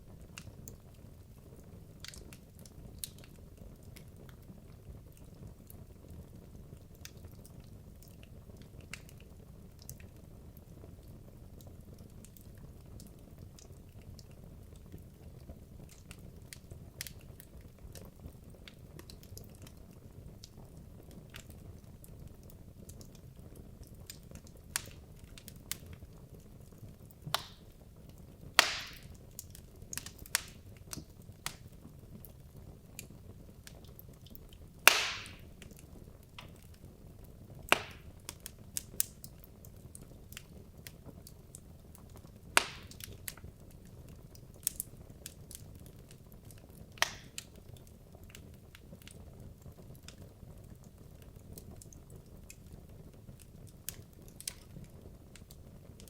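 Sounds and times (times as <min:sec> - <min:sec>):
fire crackling and popping: 0:00.0 - 0:56.0
fire hissing: 0:28.6 - 0:29.1.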